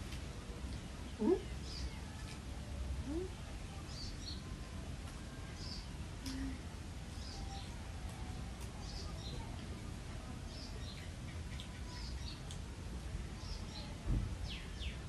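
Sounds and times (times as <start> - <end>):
small birds chirping: 0.7 - 2.4, 3.1 - 4.5, 5.4 - 7.8, 8.6 - 9.6, 10.4 - 12.6, 13.3 - 15.0
soft thump: 14.0 - 14.3.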